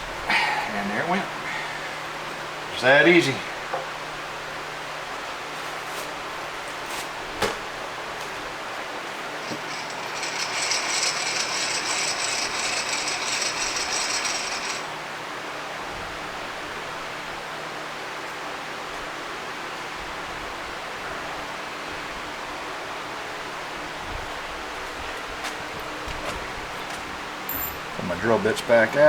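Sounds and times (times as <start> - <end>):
rapid mechanical ratcheting clicks: 9.4 - 14.9.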